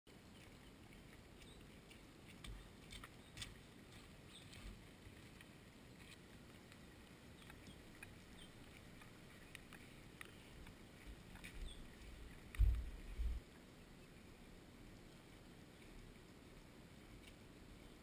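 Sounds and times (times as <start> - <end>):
faint ticks: 0.2 - 13.8.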